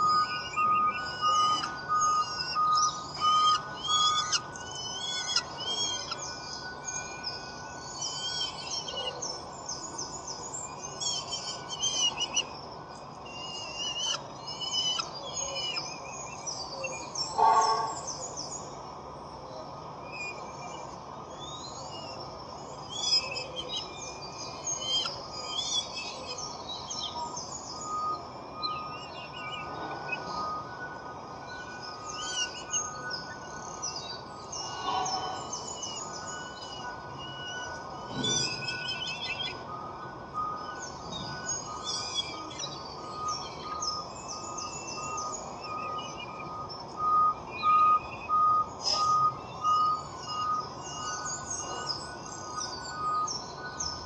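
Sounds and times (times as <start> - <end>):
birds chirping and twittering: 0.0 - 54.0
louder lower bird call: 17.4 - 18.0, 34.7 - 35.7.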